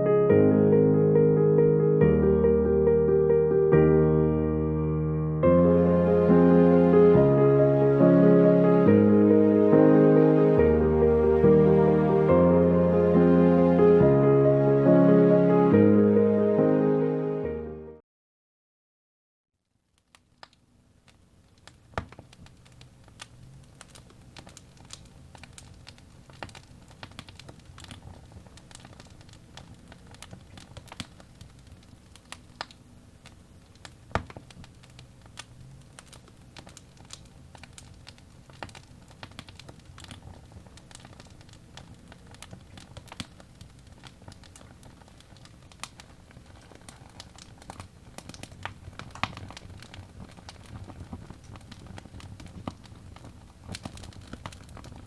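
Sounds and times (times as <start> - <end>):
wood fire crackling: 19.6 - 55.0.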